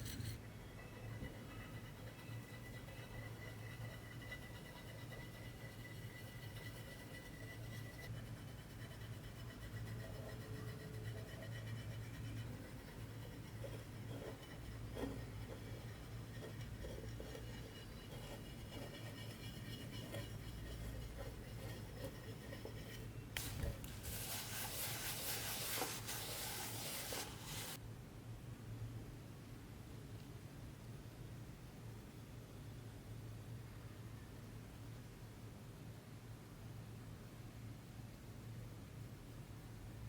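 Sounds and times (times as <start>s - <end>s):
hand rubbing brass box: 0.0s - 27.8s
steady low hum: 0.0s - 29.1s.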